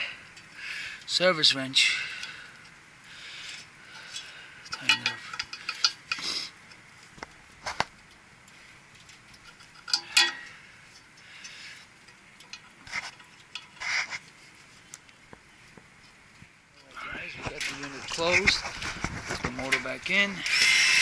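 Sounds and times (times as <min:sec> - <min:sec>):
metal clinks: 0:04.0 - 0:06.8, 0:09.4 - 0:10.6
ratchet wrench clicking: 0:20.4 - 0:21.0.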